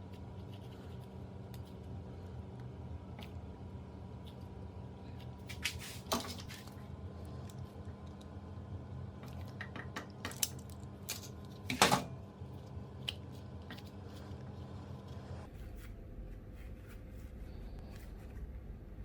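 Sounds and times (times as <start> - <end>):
steady hum: 0.0 - 19.0
scrape: 5.2 - 6.7, 13.8 - 18.6.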